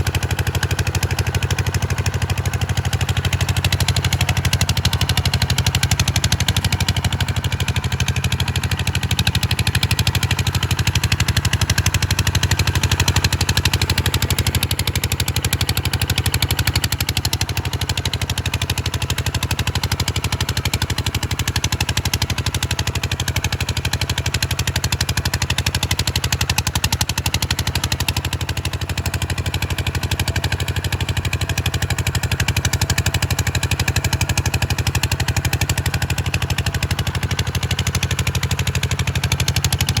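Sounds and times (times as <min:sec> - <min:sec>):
diesel tractor engine running: 0:00.0 - 0:40.0.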